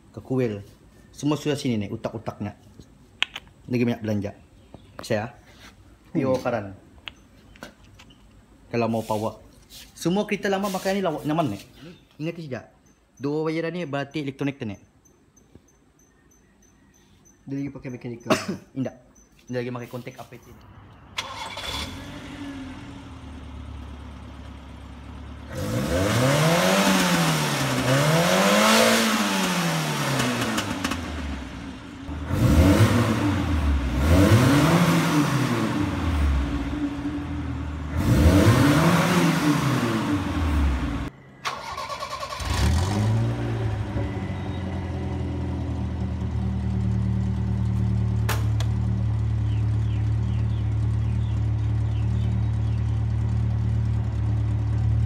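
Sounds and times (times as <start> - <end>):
car engine idling and revving: 20.7 - 41.2, 42.2 - 55.0.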